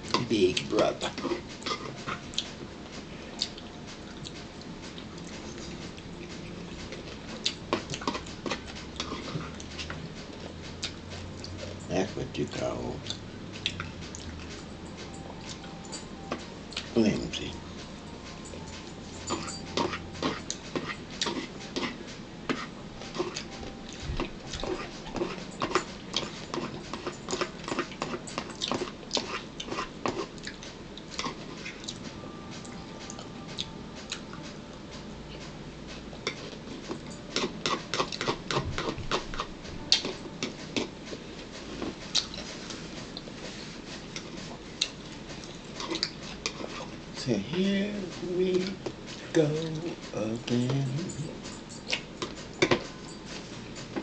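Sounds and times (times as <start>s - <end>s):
person chewing: 0.1s - 11.8s, 12.6s - 47.4s, 51.0s - 54.0s.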